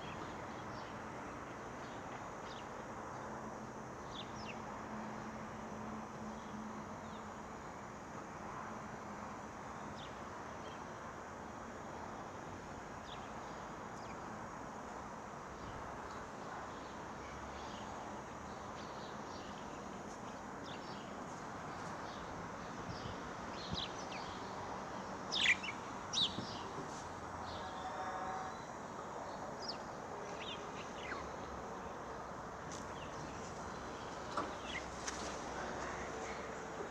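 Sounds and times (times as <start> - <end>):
steady background hiss: 0.0 - 36.9.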